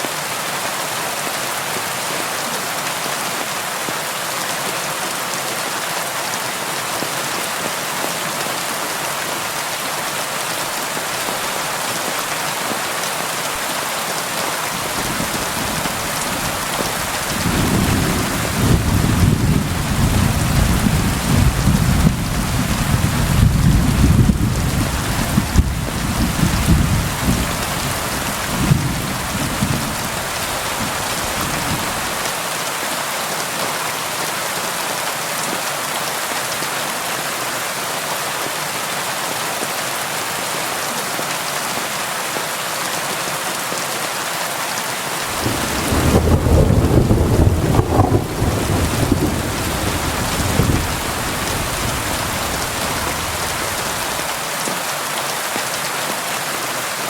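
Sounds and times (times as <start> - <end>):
thunder rumbling: 14.8 - 32.2, 45.3 - 54.3
rain on window glass: 45.3 - 54.3.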